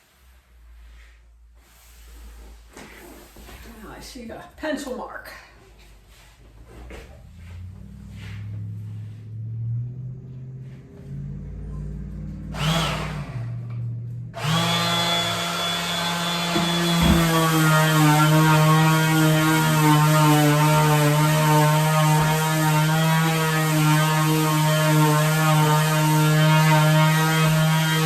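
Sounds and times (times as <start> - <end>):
small electric motor humming: 12.5 - 13.4, 14.4 - 18.7.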